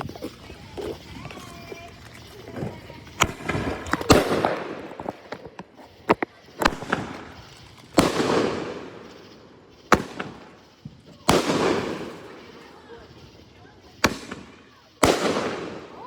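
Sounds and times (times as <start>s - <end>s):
fireworks bangs: 0.0s - 16.0s
fireworks fizzing crackle: 0.0s - 16.0s.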